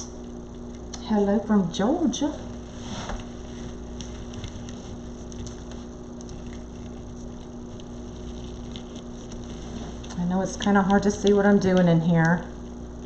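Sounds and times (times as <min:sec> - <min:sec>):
low hum of room tone: 0:00.0 - 0:13.0
mesh and ribbon crinkling: 0:02.4 - 0:13.0.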